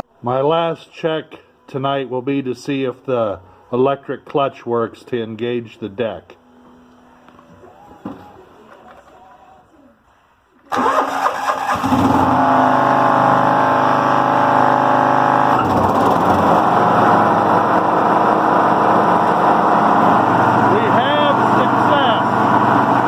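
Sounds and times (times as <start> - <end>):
lawn mower engine running: 10.7 - 23.0.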